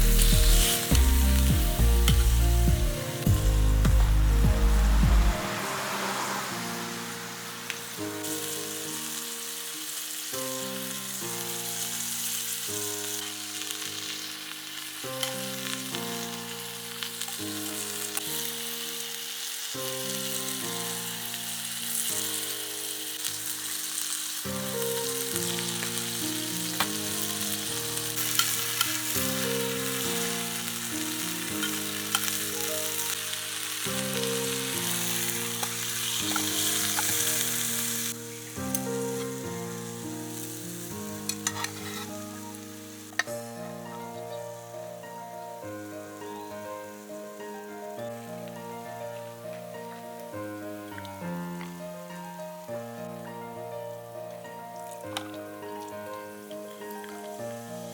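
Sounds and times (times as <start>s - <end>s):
meat sizzling in a pot: 0.0s - 53.7s, 54.4s - 57.9s
background music: 0.0s - 57.9s.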